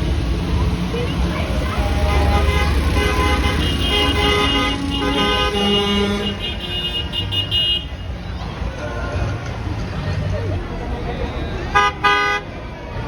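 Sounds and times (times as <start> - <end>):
truck engines rumbling: 0.0 - 13.0
truck horns honking: 1.5 - 8.2, 11.4 - 12.6.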